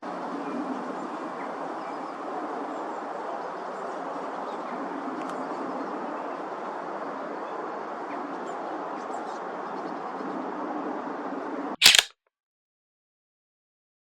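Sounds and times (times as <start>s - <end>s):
small click: 11.8s - 12.1s.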